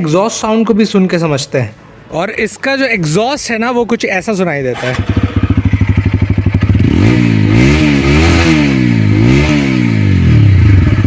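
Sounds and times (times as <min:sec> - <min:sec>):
motorcycle engine revving: 0:04.7 - 0:11.0.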